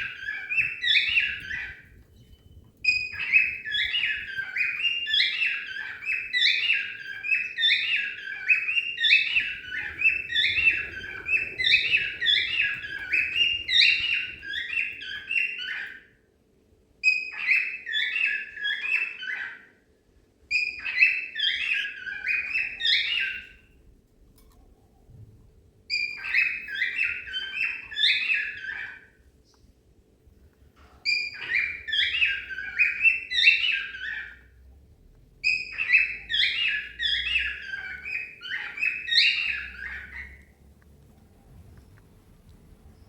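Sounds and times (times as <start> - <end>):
cockatiel whistling warble: 0.0 - 16.0, 31.1 - 34.4, 35.4 - 40.5.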